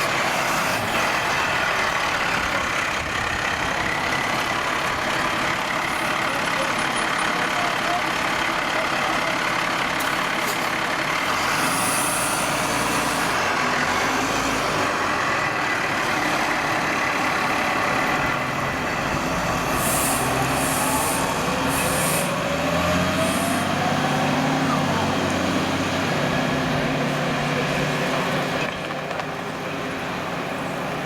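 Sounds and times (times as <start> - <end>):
fire truck engine running: 0.0 - 31.0
short hisses: 19.7 - 22.4.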